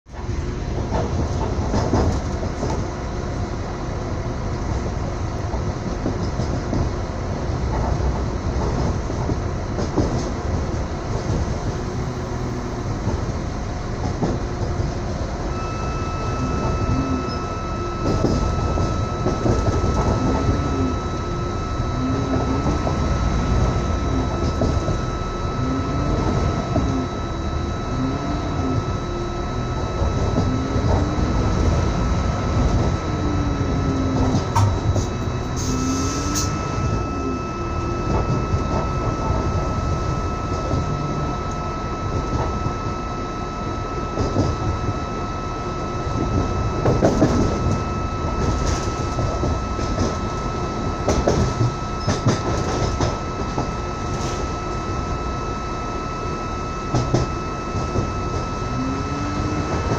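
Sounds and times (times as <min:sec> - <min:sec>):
train wheels rumbling on rails: 0:00.1 - 0:43.0, 0:43.9 - 0:55.4, 0:56.9 - 0:59.9
steady high-pitched whine: 0:00.1 - 0:59.9
rail joint clicks: 0:00.2 - 0:03.0, 0:16.2 - 0:21.3, 0:33.9 - 0:36.8, 0:46.2 - 0:47.8, 0:51.1 - 0:54.8.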